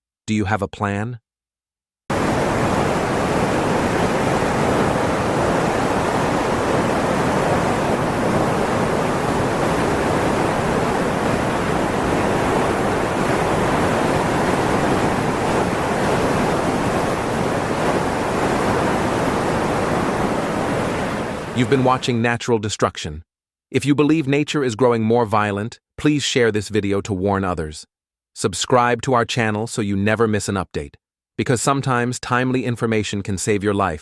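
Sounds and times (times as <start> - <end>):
water rushing: 2.1 - 22.2.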